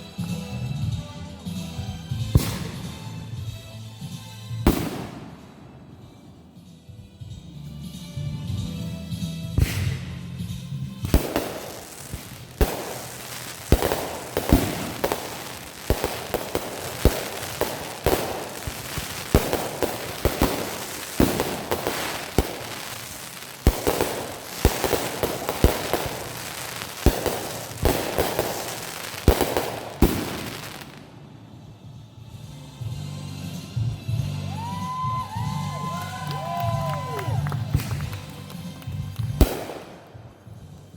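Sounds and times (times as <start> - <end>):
fireworks crackling: 1.5 - 6.7, 9.1 - 31.4, 34.6 - 40.9
fireworks bangs: 2.4 - 3.4, 4.7 - 6.2, 9.6 - 31.3, 37.6 - 40.6.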